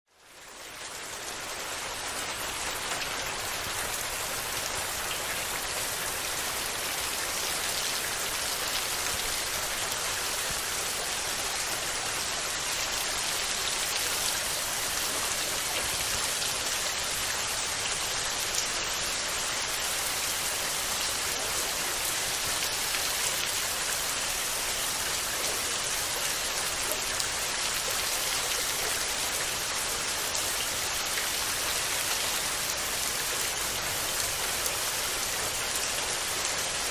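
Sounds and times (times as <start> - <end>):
rain pattering: 0.1 - 36.9.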